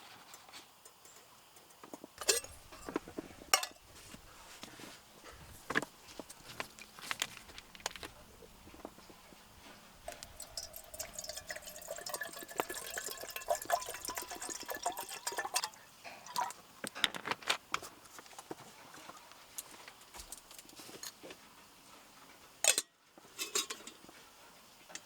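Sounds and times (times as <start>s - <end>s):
tableware clinking: 2.2s - 3.9s, 22.7s - 24.0s
liquid pouring into a cup: 10.0s - 16.6s.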